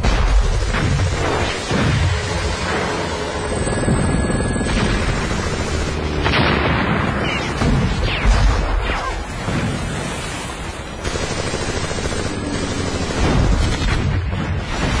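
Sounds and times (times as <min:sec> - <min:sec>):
dense gunfire: 0:00.0 - 0:03.0, 0:04.6 - 0:09.9, 0:11.0 - 0:15.0
heavy explosions: 0:03.9 - 0:10.2.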